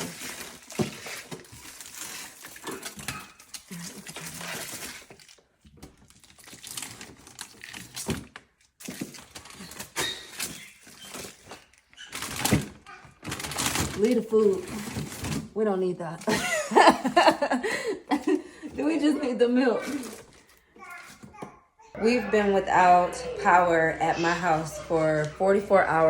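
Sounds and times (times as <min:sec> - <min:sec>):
frozen bags knocking: 0:00.0 - 0:11.6
plastic rustling: 0:00.0 - 0:21.6.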